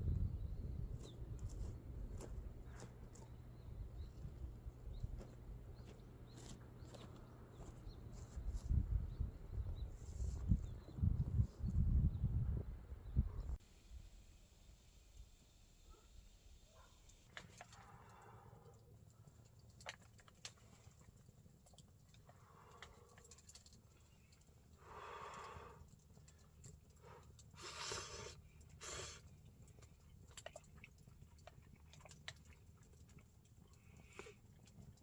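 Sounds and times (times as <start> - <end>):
wood fire crackling: 16.7 - 30.2.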